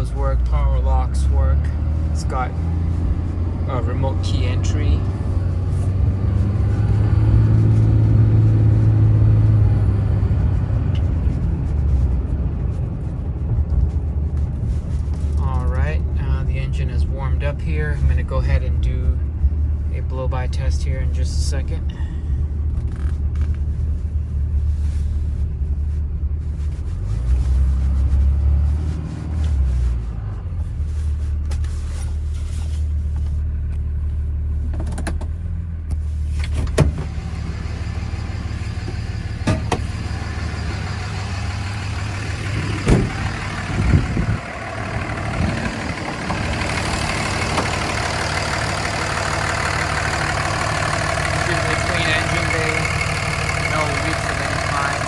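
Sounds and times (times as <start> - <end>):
diesel engine idling: 0.0 - 55.0
sharp clicks and knocks: 34.6 - 37.1.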